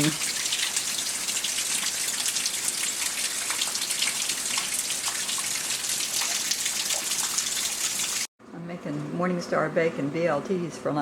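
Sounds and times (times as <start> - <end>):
raindrops splashing: 0.0 - 8.3.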